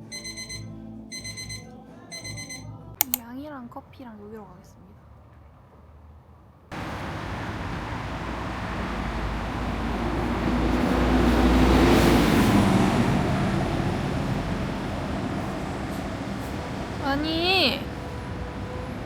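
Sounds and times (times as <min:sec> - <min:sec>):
train rumbling on rails: 0:06.7 - 0:19.0.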